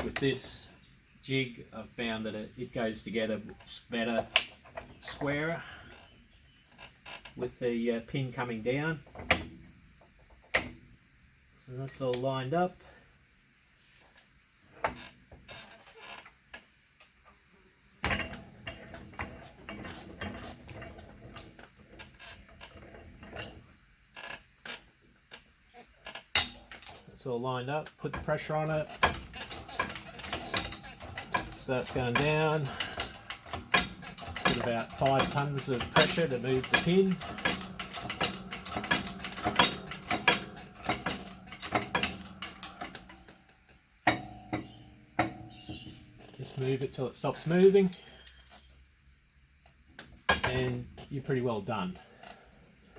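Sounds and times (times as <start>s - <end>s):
metallic clicks and knocks: 28.1s - 43.4s.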